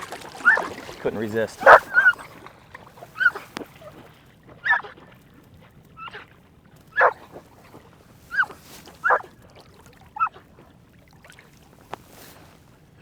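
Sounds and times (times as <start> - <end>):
dog whining and yipping: 0.4 - 0.7, 1.6 - 2.4, 3.1 - 3.5, 4.6 - 4.9, 6.0 - 6.2, 7.0 - 7.2, 8.3 - 9.3.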